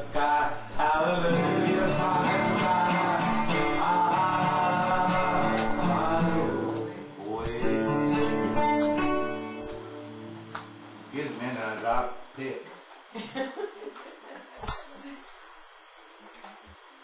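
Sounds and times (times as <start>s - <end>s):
person singing: 0.0s - 8.6s
acoustic guitar music: 0.0s - 12.3s.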